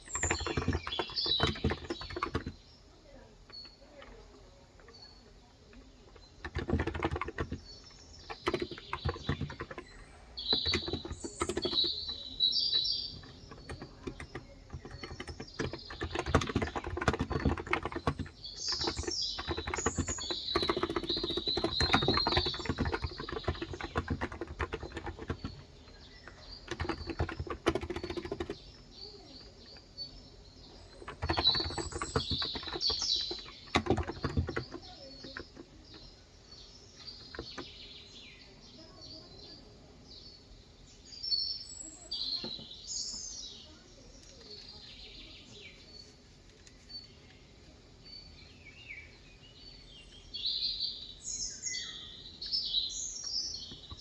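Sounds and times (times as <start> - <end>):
rapid keyboard typing: 0.0 - 2.6, 6.1 - 29.8, 30.6 - 36.0
birds chirping: 0.0 - 54.0.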